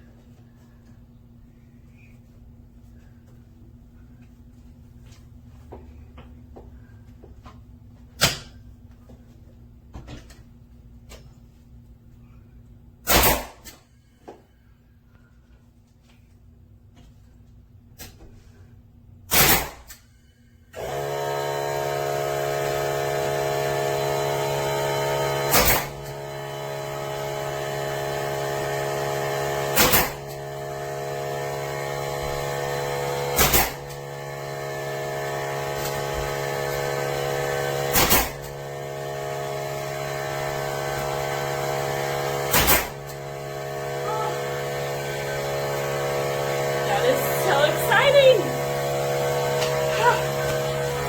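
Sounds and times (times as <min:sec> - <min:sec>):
nail gun shots: 0:13.1 - 0:13.7, 0:19.3 - 0:19.9, 0:29.8 - 0:30.2, 0:33.4 - 0:33.8, 0:37.9 - 0:38.4, 0:42.5 - 0:42.9
air compressor humming: 0:20.8 - 0:51.0.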